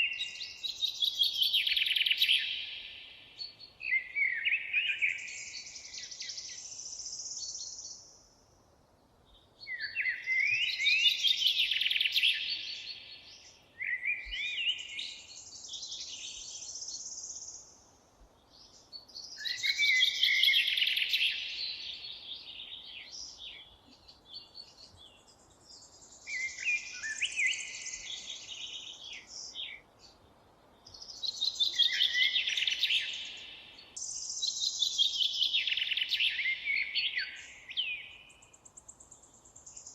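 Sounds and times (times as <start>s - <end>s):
songbird warbling and trilling: 0.0s - 3.0s, 9.6s - 17.4s, 19.0s - 29.8s, 30.9s - 38.6s.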